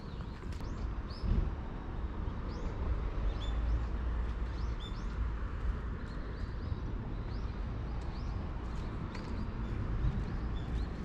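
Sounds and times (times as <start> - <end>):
small birds chirping: 0.0 - 1.4.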